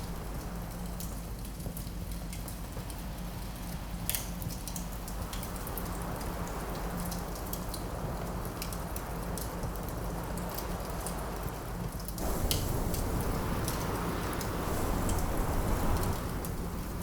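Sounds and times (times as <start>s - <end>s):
wind rushing: 0.0s - 1.0s, 12.2s - 17.0s
wood fire crackling: 0.0s - 2.4s, 12.1s - 17.0s.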